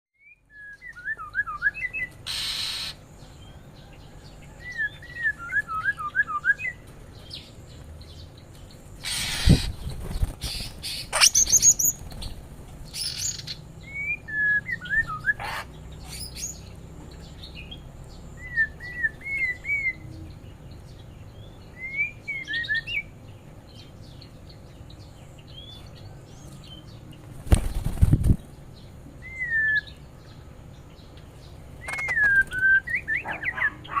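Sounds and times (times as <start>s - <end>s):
songbirds chirping: 0.2s - 34.0s.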